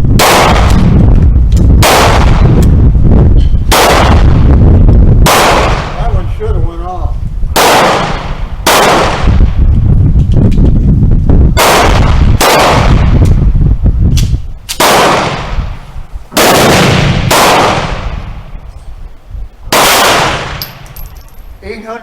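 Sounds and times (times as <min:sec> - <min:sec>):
gunshots with long echo: 0:00.1 - 0:01.1, 0:01.8 - 0:02.6, 0:03.6 - 0:04.6, 0:05.2 - 0:06.2, 0:07.5 - 0:09.6, 0:11.6 - 0:13.2, 0:14.8 - 0:18.5, 0:19.7 - 0:21.0.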